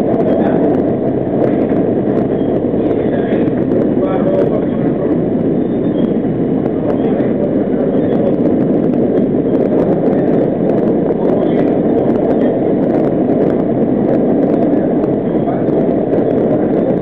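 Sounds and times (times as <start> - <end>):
subway wheels rumbling on rail: 0.0 - 17.0.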